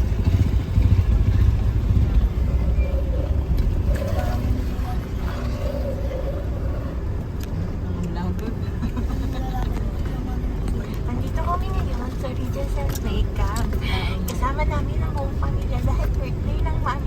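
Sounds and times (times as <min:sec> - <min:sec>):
vehicle driving on dirt road: 0:00.0 - 0:17.0.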